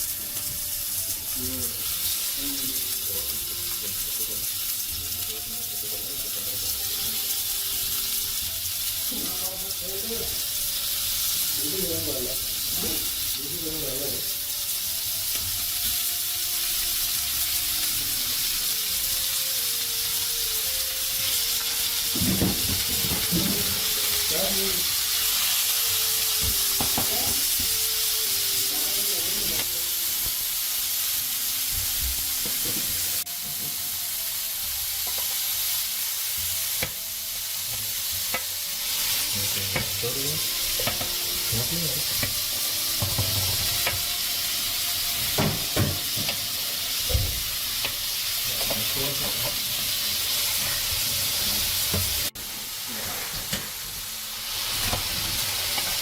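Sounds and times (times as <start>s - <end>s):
food frying sizzle: 0.0s - 56.0s
cooking utensils knocking and scraping: 22.1s - 23.8s, 26.4s - 27.7s, 39.6s - 40.0s, 40.8s - 41.2s, 42.1s - 44.2s, 45.2s - 48.0s, 48.6s - 49.9s.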